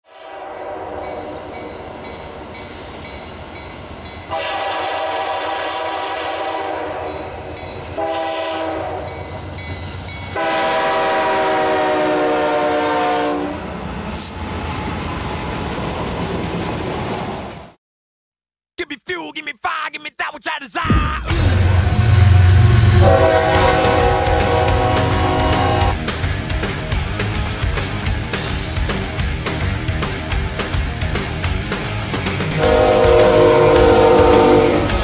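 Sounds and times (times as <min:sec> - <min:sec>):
train horn blasts: 0:00.1 - 0:01.2, 0:04.3 - 0:07.3, 0:07.9 - 0:09.2, 0:10.4 - 0:13.7, 0:21.4 - 0:26.0, 0:32.6 - 0:35.0
train rumble and wheel clatter: 0:01.0 - 0:17.8, 0:21.3 - 0:35.0.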